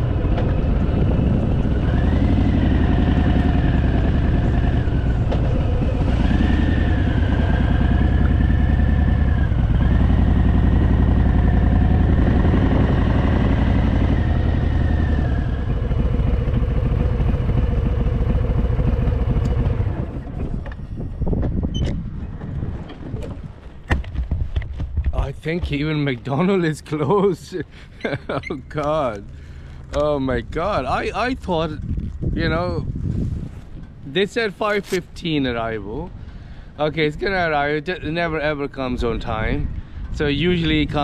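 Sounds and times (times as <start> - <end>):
motorcycle engine running: 0.0 - 21.7.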